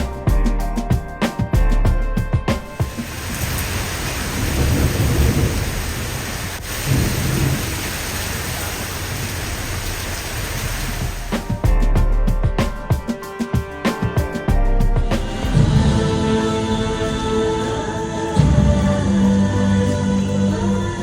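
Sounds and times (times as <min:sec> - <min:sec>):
thunder rumbling: 0:02.7 - 0:12.5
rain falling: 0:02.8 - 0:11.7.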